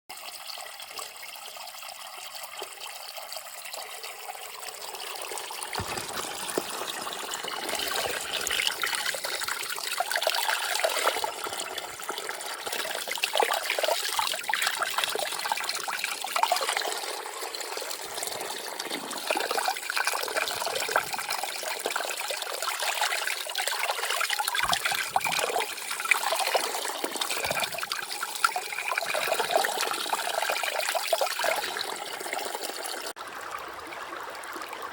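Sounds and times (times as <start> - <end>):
water trickling over stones: 0.1 - 33.4.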